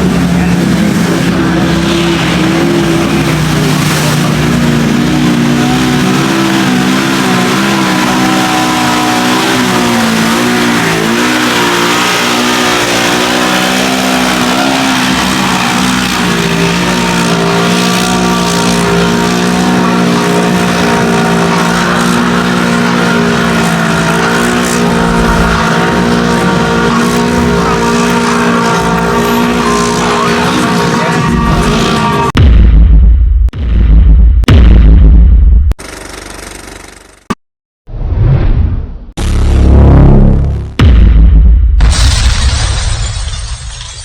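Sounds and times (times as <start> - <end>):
off-road vehicle engine revving hard: 0.0 - 32.4.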